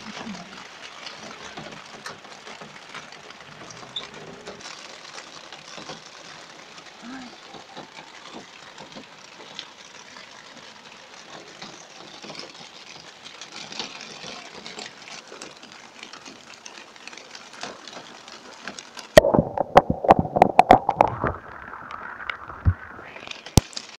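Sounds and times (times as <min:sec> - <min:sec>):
heavy rain on a car: 0:00.0 - 0:23.9
loud knocks and crackles: 0:19.2 - 0:23.9.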